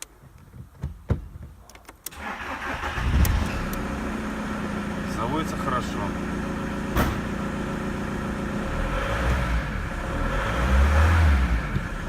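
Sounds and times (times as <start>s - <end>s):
diesel engine running and revving: 2.7s - 12.0s.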